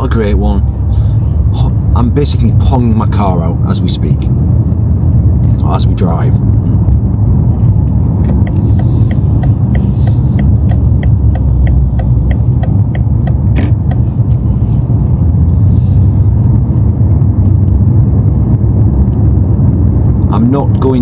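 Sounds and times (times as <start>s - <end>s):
car engine rumble inside cabin: 0.0s - 21.0s
regular ticking: 4.9s - 14.5s.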